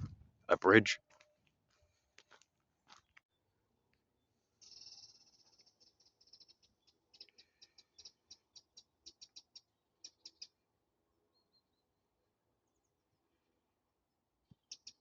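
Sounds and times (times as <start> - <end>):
songbird singing trills: 4.2 - 10.6, 11.2 - 12.0, 14.4 - 15.0.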